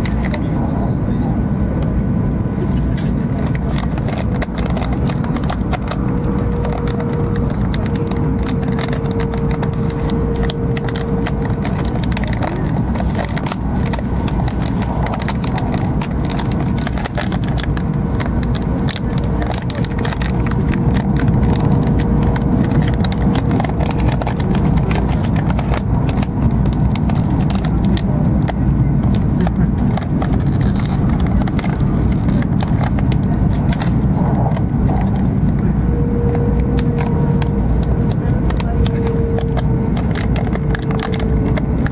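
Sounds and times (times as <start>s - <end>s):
train cabin low rumble: 0.0s - 41.9s.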